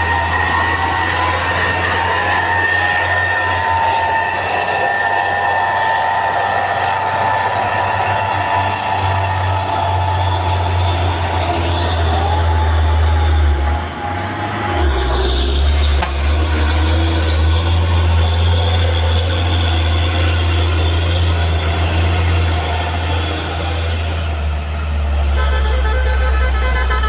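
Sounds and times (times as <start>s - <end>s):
heavy truck engine droning: 0.0s - 27.0s
road noise: 0.0s - 27.0s
truck horn: 7.2s - 16.4s, 25.2s - 27.0s.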